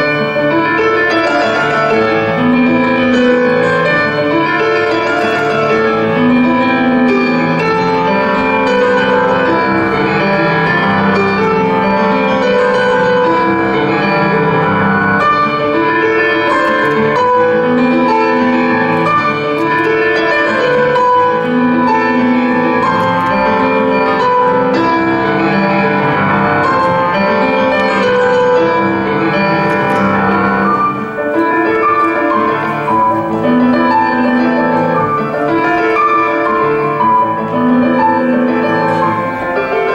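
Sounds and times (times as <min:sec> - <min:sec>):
piano music: 0:00.0 - 0:39.9.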